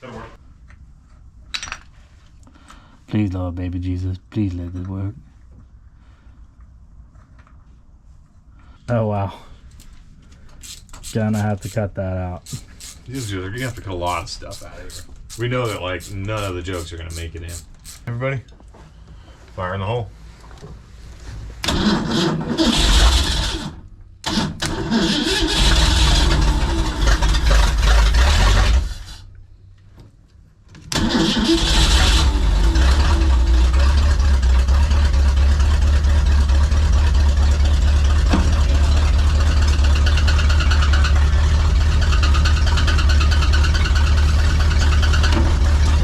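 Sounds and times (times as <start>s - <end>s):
engine starting and idling: 12.5s - 18.0s, 21.6s - 29.3s, 30.9s - 46.0s.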